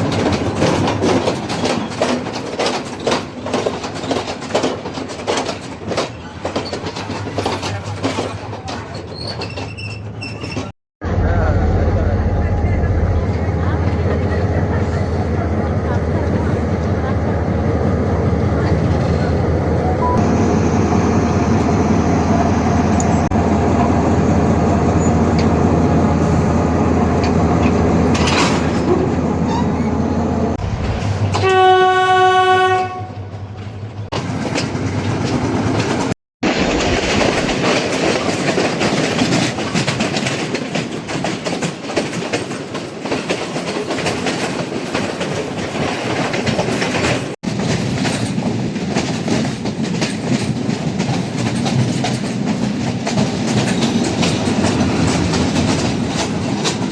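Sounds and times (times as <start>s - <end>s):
train wheels clicking over rails: 0.0s - 10.7s, 34.1s - 56.9s
diesel locomotive engine running: 11.0s - 40.6s
train horn blast: 31.3s - 33.6s.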